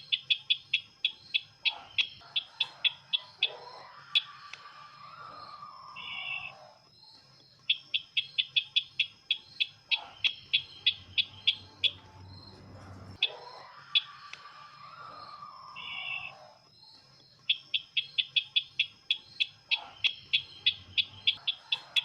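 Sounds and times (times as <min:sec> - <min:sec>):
bird call with sharp high chips: 0:00.0 - 0:06.8, 0:07.7 - 0:16.6
faint low hum: 0:00.0 - 0:22.0.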